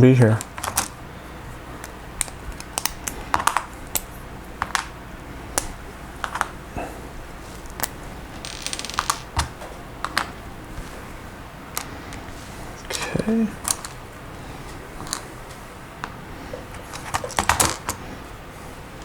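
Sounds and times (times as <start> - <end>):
plastic pieces clicking and tapping: 1.8 - 4.9, 7.7 - 10.3
plastic pieces rattling: 8.4 - 9.4.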